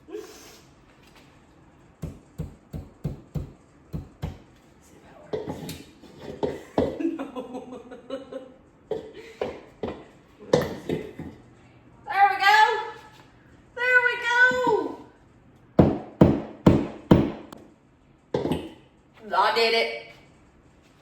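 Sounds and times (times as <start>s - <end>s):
hammer tapping a nail: 2.0s - 4.4s, 15.8s - 17.6s.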